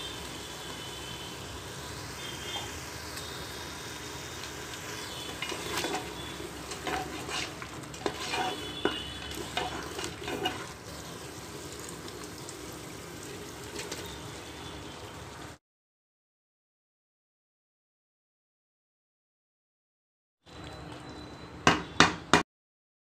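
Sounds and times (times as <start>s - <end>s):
food sizzling in oil: 0.0s - 15.6s
wooden spoon scraping a pot: 5.2s - 11.2s.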